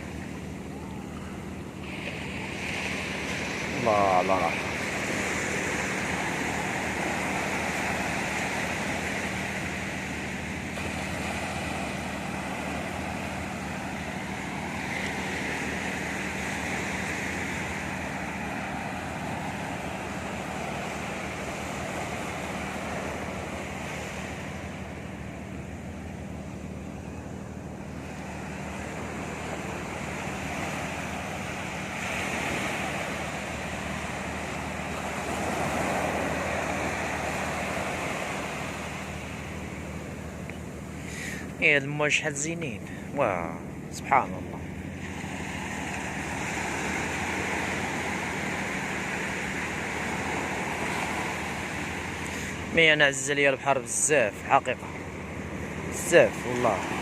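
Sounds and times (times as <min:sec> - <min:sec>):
sea waves breaking: 0:00.0 - 0:57.0.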